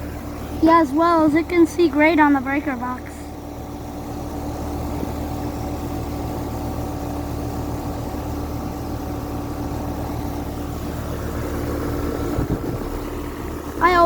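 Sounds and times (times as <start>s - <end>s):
air conditioner unit humming: 0.0s - 14.0s.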